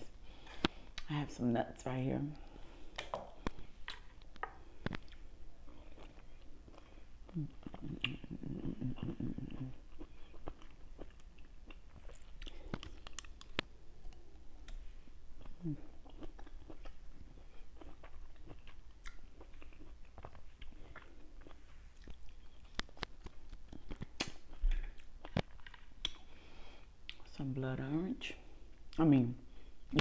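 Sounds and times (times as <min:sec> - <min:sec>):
person chewing fruit: 0:02.4 - 0:27.3.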